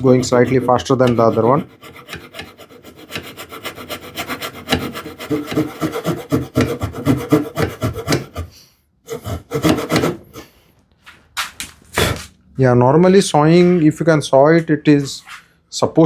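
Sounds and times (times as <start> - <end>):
hand saw cutting wood: 0.0 - 10.6.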